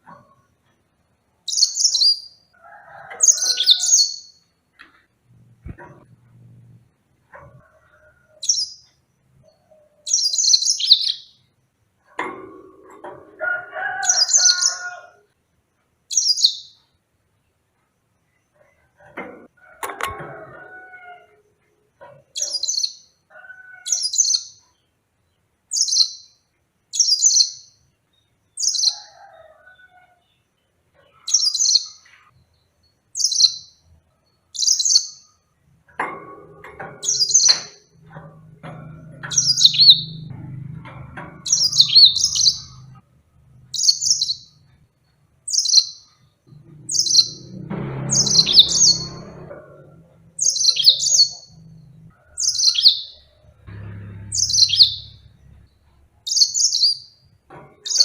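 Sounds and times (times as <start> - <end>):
canary singing: 1.4 - 4.4, 8.4 - 11.5, 13.9 - 15.2, 16.1 - 16.8, 22.2 - 24.6, 25.7 - 27.8, 28.6 - 29.1, 31.3 - 32.1, 33.2 - 33.9, 34.5 - 35.4, 36.7 - 43.0, 43.6 - 44.8, 45.4 - 58.0
low background rumble: 46.4 - 52.2.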